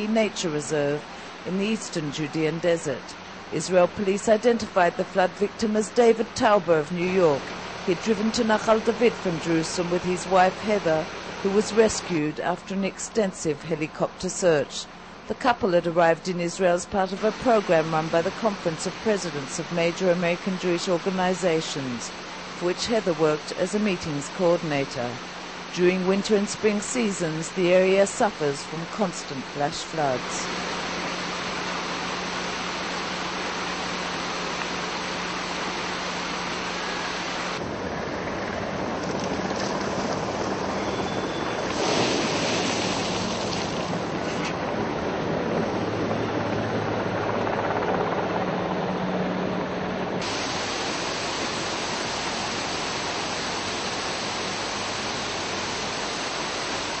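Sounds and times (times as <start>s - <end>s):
flood water rushing: 41.7s - 44.4s, 50.2s - 57.0s.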